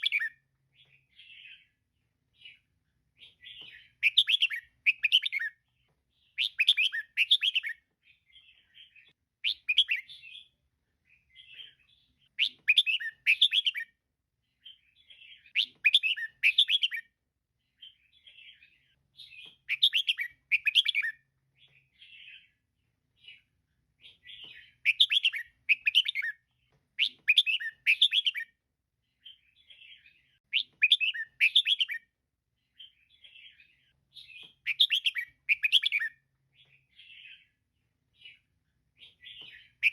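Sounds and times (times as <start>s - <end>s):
bird chirping rapidly: 3.2s - 5.6s, 6.2s - 7.8s, 8.4s - 10.5s, 11.3s - 13.9s, 14.6s - 17.1s, 19.2s - 21.2s, 24.1s - 26.4s, 27.0s - 28.5s, 29.2s - 32.1s, 32.8s - 36.2s.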